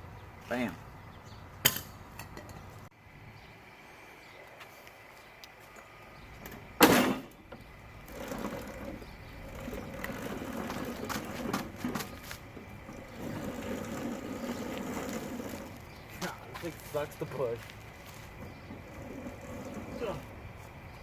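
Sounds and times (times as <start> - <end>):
snowblower tracks rattling and clicking: 8.0 - 17.0.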